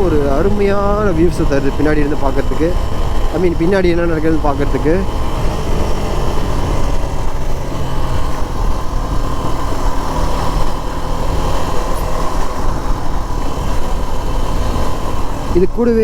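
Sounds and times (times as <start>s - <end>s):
motorcycle engine running: 0.0s - 16.0s
rush of riding wind: 0.0s - 16.0s.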